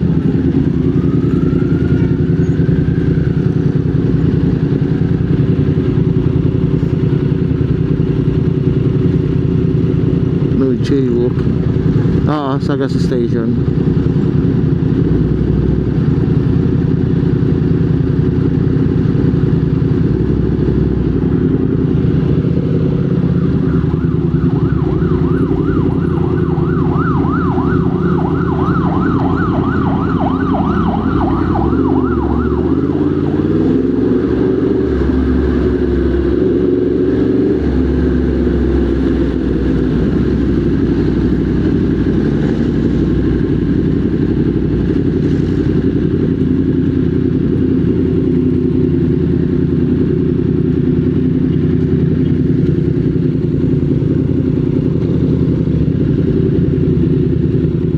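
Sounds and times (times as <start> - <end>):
motorcycle engine running: 0.0 - 57.9
fast warbling siren: 0.1 - 3.8, 22.6 - 36.6.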